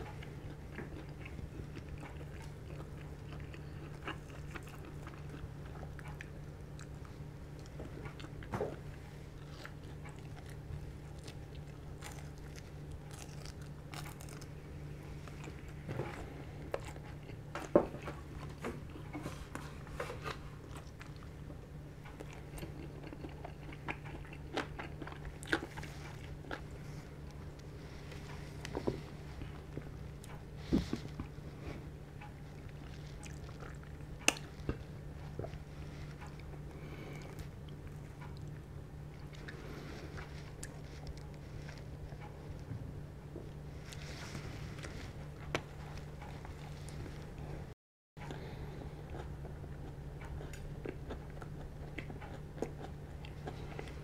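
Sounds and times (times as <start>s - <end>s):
chewing crispy fried chicken: 0.0s - 47.6s, 48.2s - 54.0s
steady low hum: 0.0s - 54.0s.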